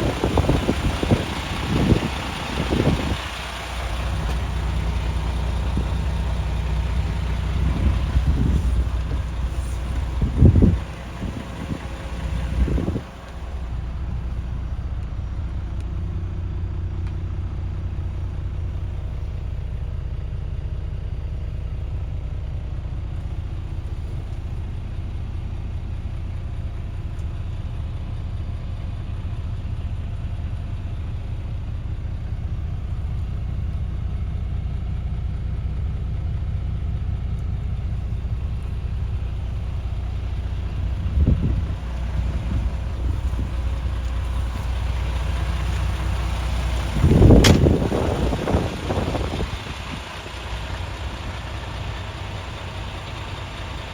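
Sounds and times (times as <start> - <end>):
diesel truck engine idling: 0.0 - 53.9
thump: 47.4 - 47.9.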